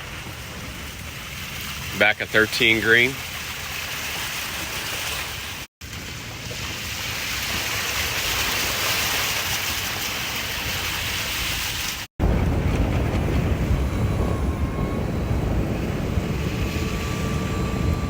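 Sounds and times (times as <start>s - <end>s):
wind on microphone: 10.0s - 18.0s
low rumble: 12.2s - 18.0s.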